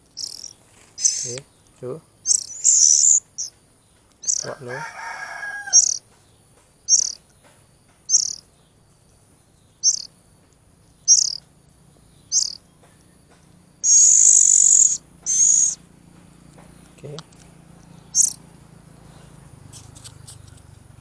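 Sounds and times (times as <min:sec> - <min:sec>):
louder bird call: 0:00.0 - 0:01.4, 0:02.2 - 0:03.6, 0:04.2 - 0:06.1, 0:11.0 - 0:11.4, 0:12.3 - 0:12.6, 0:13.8 - 0:15.8, 0:18.0 - 0:18.4
bird chicks begging chirps: 0:00.0 - 0:20.8.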